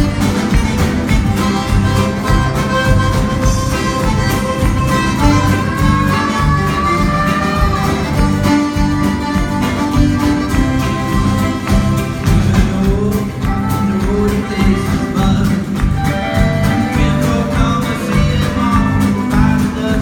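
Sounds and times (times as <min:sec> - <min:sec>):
fiddle melody: 0:00.0 - 0:12.5
steady bass beat: 0:00.0 - 0:20.0
strummed guitar: 0:00.0 - 0:20.0.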